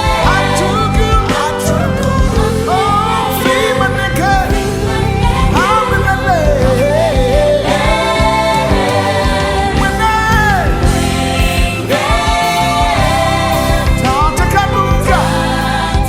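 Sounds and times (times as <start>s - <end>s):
gospel song with band: 0.0s - 16.0s.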